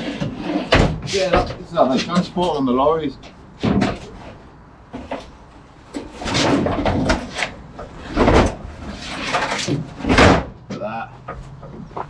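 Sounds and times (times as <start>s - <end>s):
metal tank scraping and knocking: 3.6s - 10.6s.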